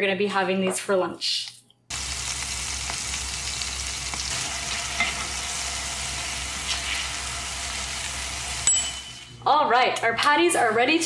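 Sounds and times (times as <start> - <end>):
patties sizzling in oil: 1.9 - 9.2.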